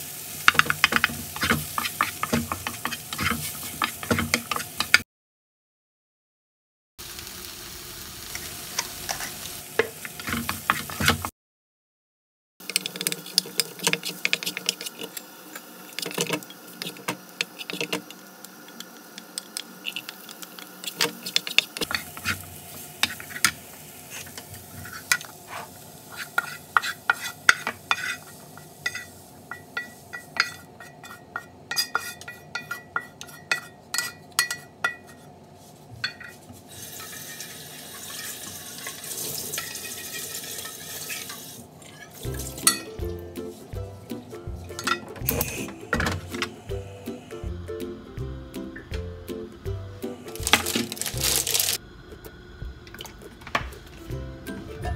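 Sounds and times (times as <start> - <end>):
wooden spatula scraping a pan: 0.5 - 5.0, 9.0 - 11.3, 12.6 - 15.2, 15.9 - 18.2, 20.8 - 34.2, 35.0 - 42.2
steady hiss: 12.7 - 30.7, 45.3 - 54.7.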